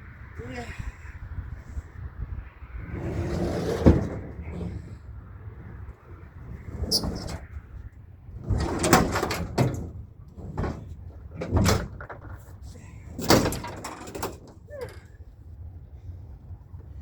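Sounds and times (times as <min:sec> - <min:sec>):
scrap metal bangs and clatter: 0:02.9 - 0:05.0, 0:08.4 - 0:14.7.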